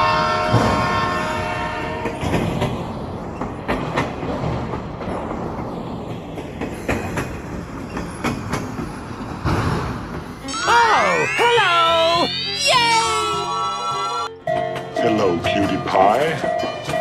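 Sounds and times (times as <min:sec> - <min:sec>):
train horn: 0:00.0 - 0:02.3
train wheels clacking on rails: 0:00.0 - 0:10.4, 0:14.3 - 0:17.0
train rumble: 0:00.0 - 0:17.0.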